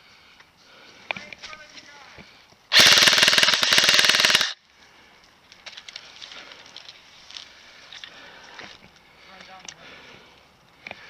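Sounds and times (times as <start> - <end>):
airsoft gun full-auto burst: 2.7 - 4.6
scattered clicks: 2.7 - 4.6.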